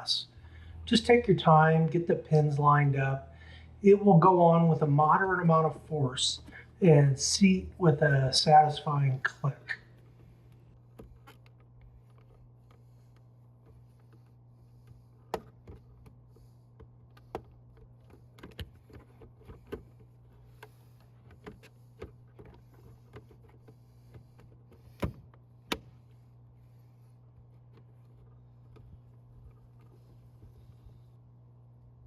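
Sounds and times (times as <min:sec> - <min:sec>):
steady low hum: 0:00.0 - 0:32.0
plastic clicks and taps: 0:15.3 - 0:16.2.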